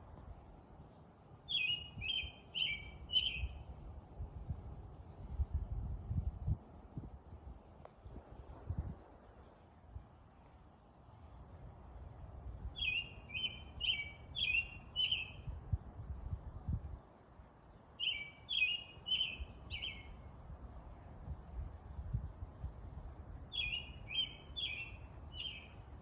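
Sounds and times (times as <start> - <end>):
bird chirping: 1.5 - 3.7, 12.3 - 15.5, 18.0 - 20.5, 23.5 - 26.0.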